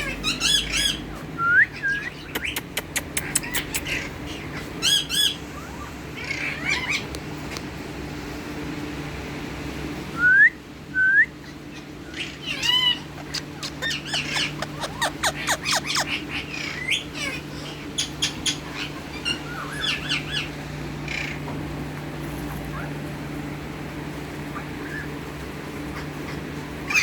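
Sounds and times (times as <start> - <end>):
parakeet whistling and chirping: 0.2 - 2.6, 12.1 - 20.5.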